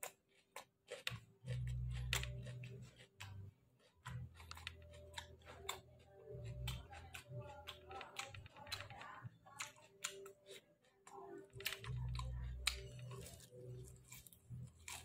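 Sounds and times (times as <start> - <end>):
chewing with wet mouth clicks: 0.0 - 15.0.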